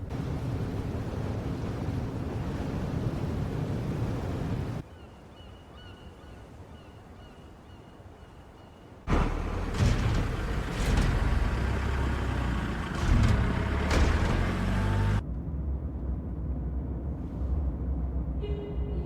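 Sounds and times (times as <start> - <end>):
vehicle engine and road noise: 9.1 - 19.0.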